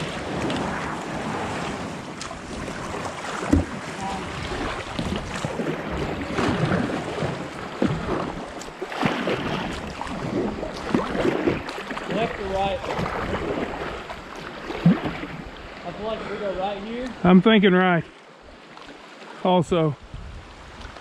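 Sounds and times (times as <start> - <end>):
wind on microphone: 0.0 - 15.8, 20.0 - 21.0
rushing creek water: 0.0 - 21.0.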